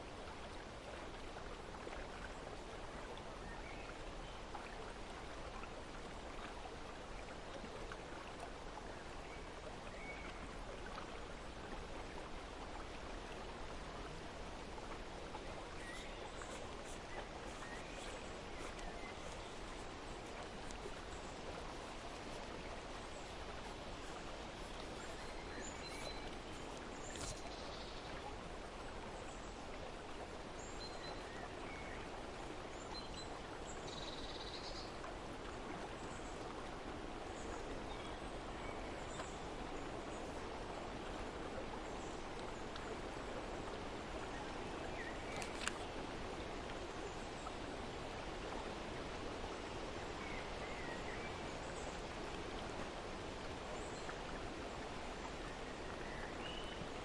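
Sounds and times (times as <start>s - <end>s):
flowing water: 0.0s - 57.0s.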